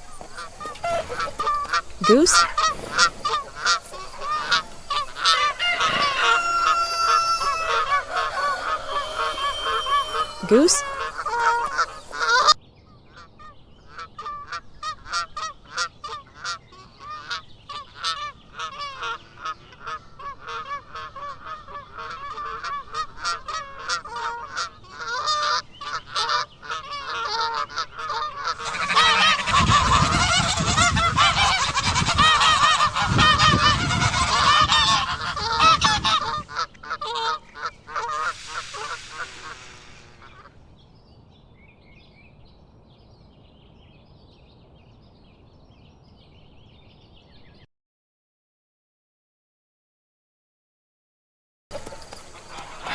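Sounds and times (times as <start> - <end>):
geese honking: 0.0 - 12.6, 14.2 - 40.5, 51.7 - 52.9.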